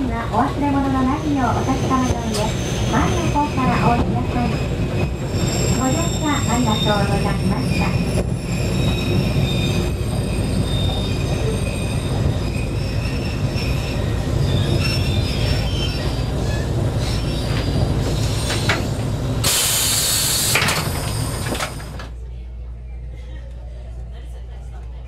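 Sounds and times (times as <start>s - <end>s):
railcar engine and wheel rumble: 0.0s - 25.0s
wheel squeal: 4.6s - 19.0s
loud hiss burst: 19.4s - 20.6s.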